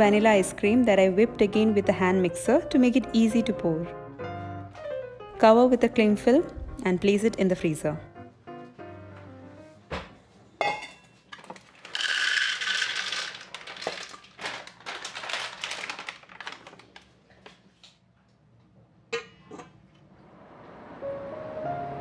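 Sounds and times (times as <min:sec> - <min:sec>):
chickpeas rattling into metal bowl: 0:11.4 - 0:16.7.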